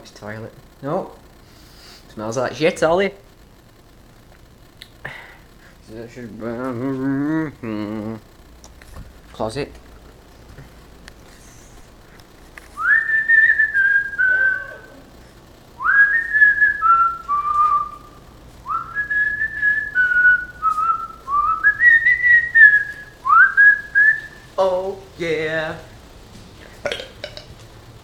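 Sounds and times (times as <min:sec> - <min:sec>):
person whistling a tune: 0:12.8 - 0:15.0, 0:15.8 - 0:18.1, 0:18.7 - 0:24.4.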